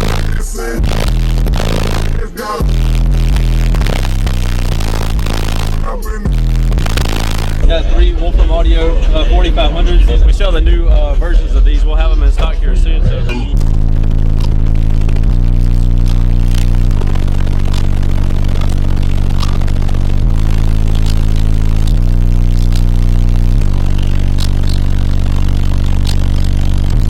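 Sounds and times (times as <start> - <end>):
bass-heavy music from subwoofer: 0.0 - 27.0.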